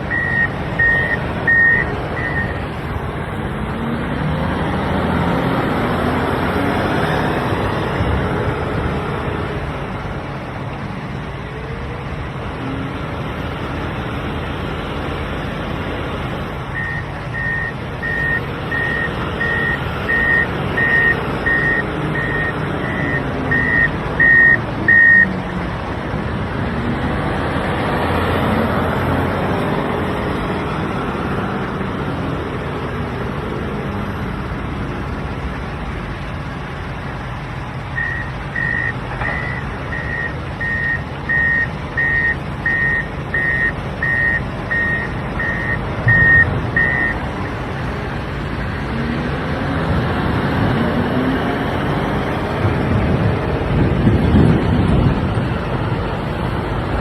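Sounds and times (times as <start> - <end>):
reversing alarm beeping: 0.0 - 2.6, 16.7 - 25.4, 38.0 - 47.2
diesel engine running: 0.0 - 57.0.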